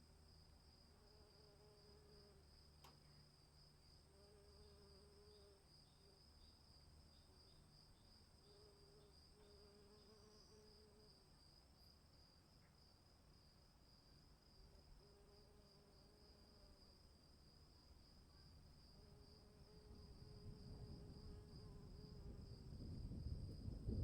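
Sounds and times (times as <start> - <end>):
low insect buzz: 0.0 - 24.0
click: 2.8 - 3.1.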